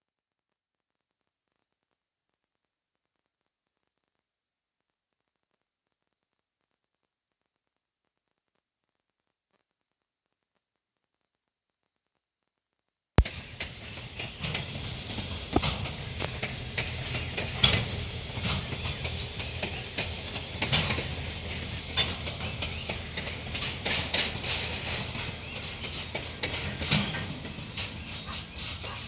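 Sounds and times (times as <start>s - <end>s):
train low rumble: 13.2s - 29.0s
train wheels clicking on rails: 13.2s - 29.0s.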